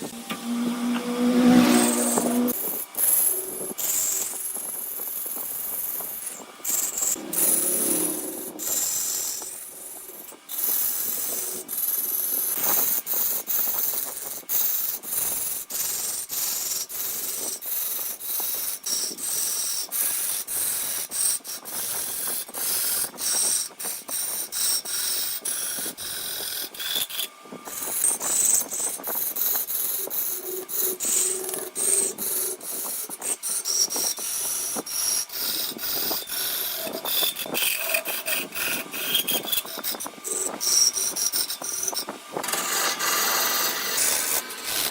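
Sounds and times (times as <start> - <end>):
lathe tool scraping wood: 0.0 - 4.4, 5.8 - 44.9.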